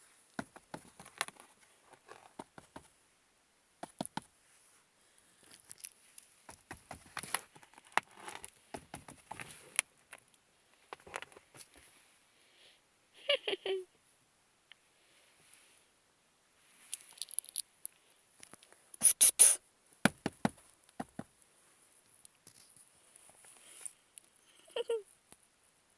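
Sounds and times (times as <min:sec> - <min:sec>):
paws and claws tapping surfaces: 0:00.4 - 0:02.9, 0:03.8 - 0:04.3, 0:06.5 - 0:09.7, 0:20.1 - 0:21.3.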